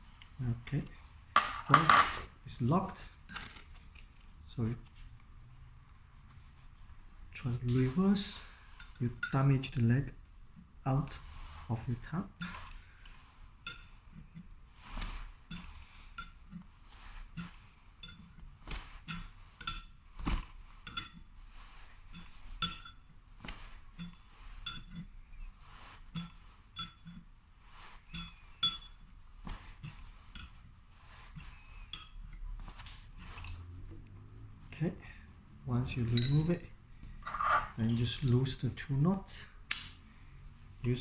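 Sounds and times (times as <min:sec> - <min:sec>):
spanners clinking on metal nuts: 0:01.4 - 0:02.3, 0:28.1 - 0:29.1, 0:36.0 - 0:38.7, 0:39.7 - 0:40.1.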